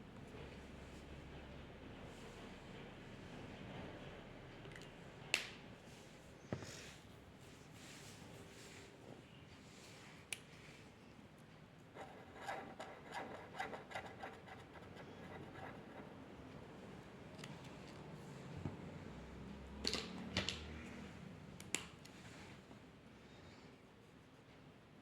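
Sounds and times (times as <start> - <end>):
drawing tool scratching paper: 12.0 - 16.2.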